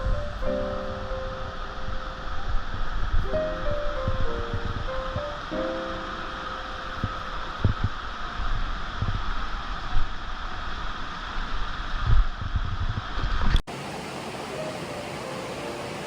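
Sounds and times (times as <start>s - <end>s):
wind buffeting microphone: 0.0s - 6.1s, 6.8s - 10.8s, 11.5s - 13.6s
steady hum: 0.0s - 12.9s
waterfall rushing water: 13.7s - 16.0s.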